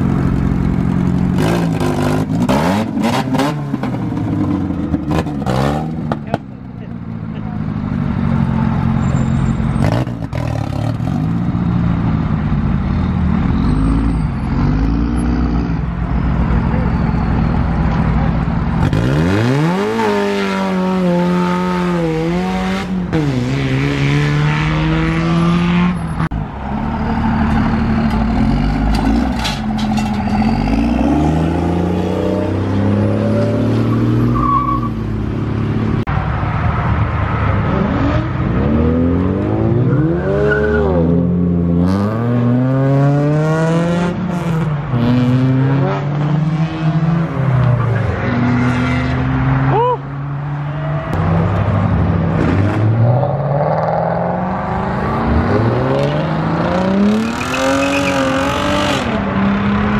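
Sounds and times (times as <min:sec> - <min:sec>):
car engines revving and accelerating: 0:00.0 - 0:59.9.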